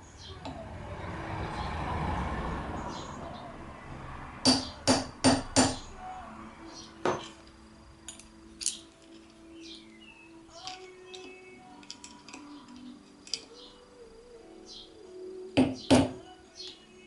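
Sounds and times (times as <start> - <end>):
metal parts knocking together: 7.0 - 9.4, 10.6 - 13.6.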